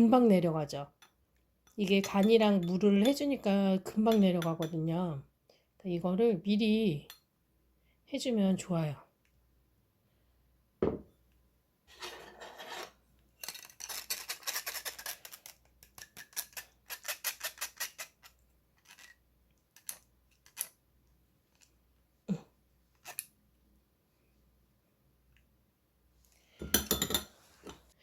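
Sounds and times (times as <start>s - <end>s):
utensil beating eggs in a bowl: 1.7s - 4.8s.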